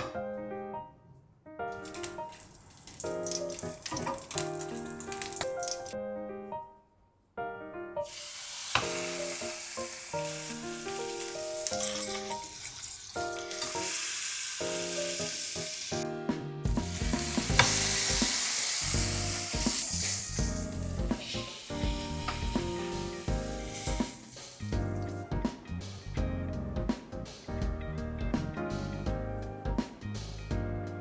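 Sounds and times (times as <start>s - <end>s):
steak sizzling: 1.8s - 6.0s, 8.0s - 16.0s, 16.7s - 25.2s
background music: 3.0s - 6.9s, 7.6s - 12.6s, 13.2s - 31.0s
deep bass beat: 16.6s - 18.2s, 18.9s - 19.8s, 20.4s - 21.2s, 21.8s - 24.0s, 24.6s - 31.0s.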